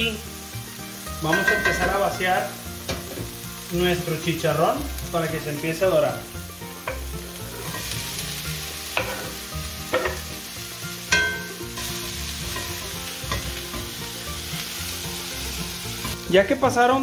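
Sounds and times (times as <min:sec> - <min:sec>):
meat sizzling in hot oil: 0:00.0 - 0:17.0
knife and spatula scraping pan: 0:07.5 - 0:08.0, 0:08.9 - 0:10.2.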